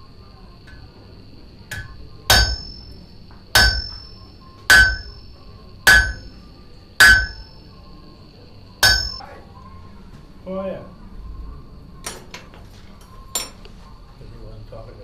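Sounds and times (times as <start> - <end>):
hammer striking metal on anvil: 1.7 - 6.4, 7.0 - 7.6, 8.8 - 9.2.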